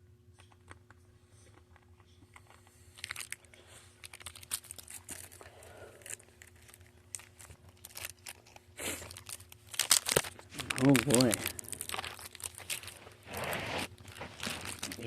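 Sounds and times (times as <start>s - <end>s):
plastic wrapper crinkling and tearing: 2.4s - 15.0s.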